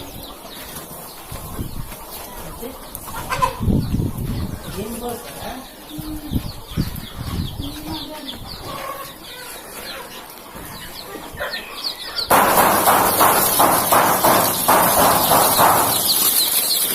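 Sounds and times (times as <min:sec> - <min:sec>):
chickens clucking and peeping: 0:00.0 - 0:16.9.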